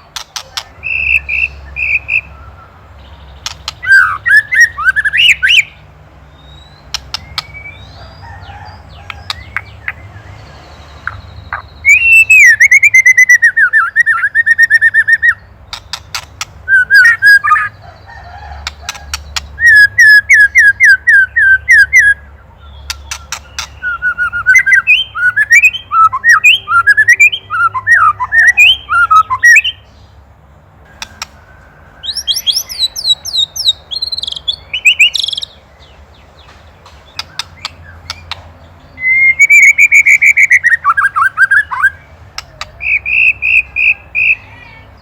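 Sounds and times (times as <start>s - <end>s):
bird singing whistled notes: 0.4s - 17.8s, 19.4s - 30.0s, 30.9s - 36.0s, 37.1s - 45.0s
bird sharp clicking rattle: 3.4s - 3.9s, 15.7s - 16.6s, 31.0s - 31.4s, 36.5s - 38.5s.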